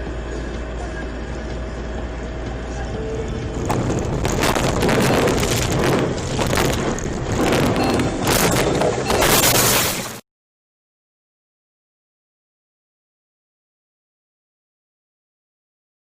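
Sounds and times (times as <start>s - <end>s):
car road and engine noise: 0.0s - 9.9s
rough noise with cracks and knocks: 3.3s - 10.2s.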